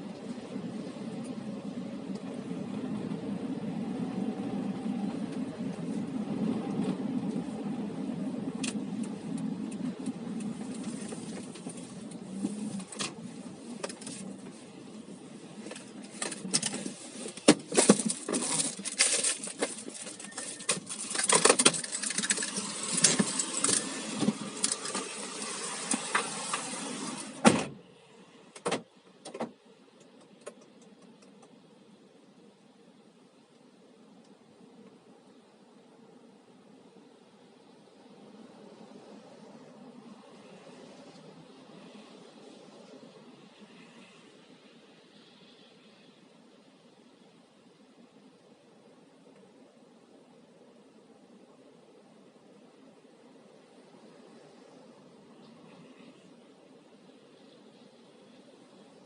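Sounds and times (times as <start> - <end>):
car cabin noise: 0.0 - 32.5
sharp clicks and rattles: 8.6 - 14.5, 15.6 - 27.5.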